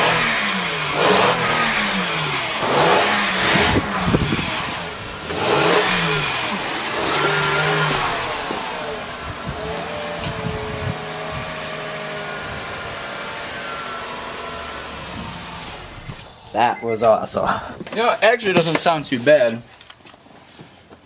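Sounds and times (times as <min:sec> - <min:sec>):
car engine revving: 0:00.0 - 0:16.8.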